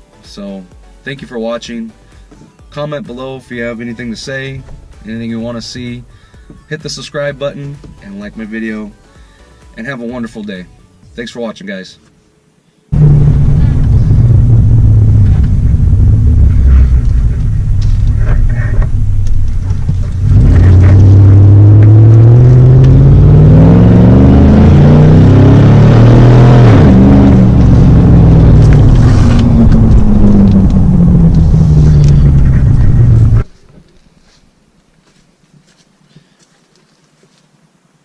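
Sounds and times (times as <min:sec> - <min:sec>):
loud truck engine revving: 0:13.0 - 0:33.4.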